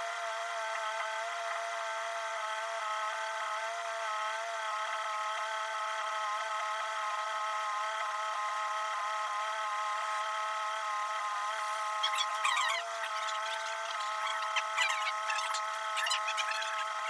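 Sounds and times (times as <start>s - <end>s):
machine motor running: 0.0s - 17.0s
short high squeaks: 11.6s - 17.0s.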